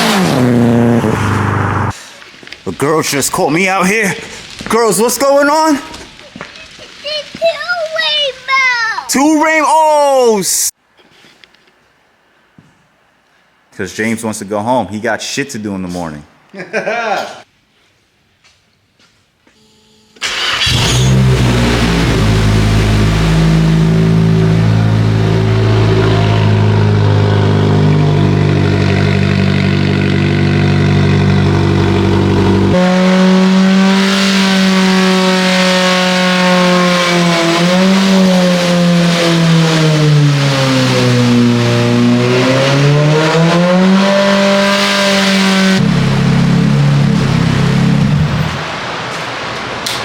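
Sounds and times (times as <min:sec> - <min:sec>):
car engine running: 0:20.2 - 0:48.6.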